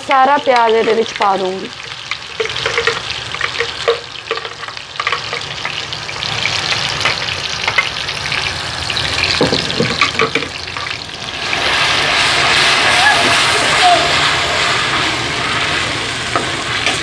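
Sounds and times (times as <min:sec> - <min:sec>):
paste sizzling in hot oil: 0:00.0 - 0:17.0
ladle clinking and scraping pan: 0:00.5 - 0:08.0, 0:09.3 - 0:11.0.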